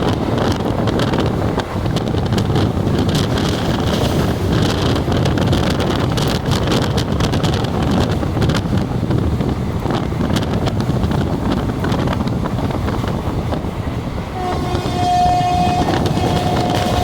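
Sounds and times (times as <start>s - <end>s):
steady rushing noise: 0.0s - 17.0s
horn sounding: 14.4s - 17.0s.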